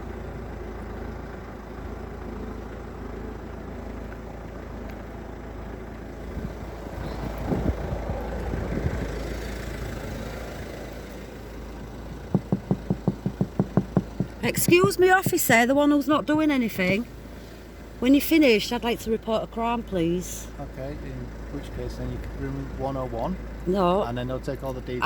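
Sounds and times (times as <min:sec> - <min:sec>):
vehicle engine idling: 0:00.0 - 0:25.0
rapid taps: 0:12.3 - 0:17.1.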